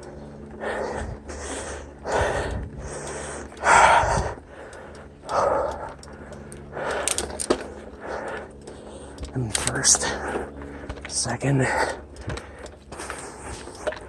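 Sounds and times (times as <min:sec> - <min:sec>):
person breathing heavily: 0:00.0 - 0:14.0.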